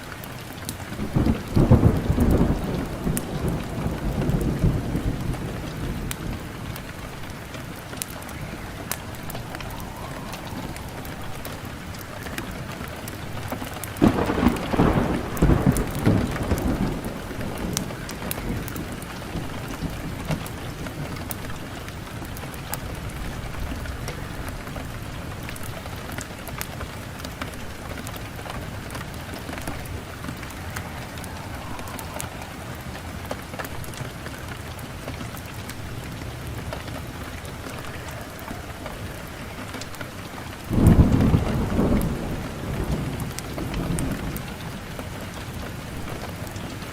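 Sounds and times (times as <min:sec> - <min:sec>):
wood fire crackling: 0:00.0 - 0:46.9
loud low rumbling: 0:07.7 - 0:13.1, 0:29.5 - 0:34.4.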